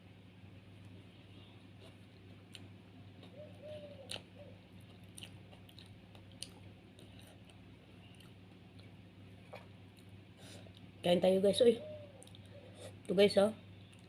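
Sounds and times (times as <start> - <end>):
low steady hum: 0.0 - 14.0
person chewing food: 1.8 - 10.9.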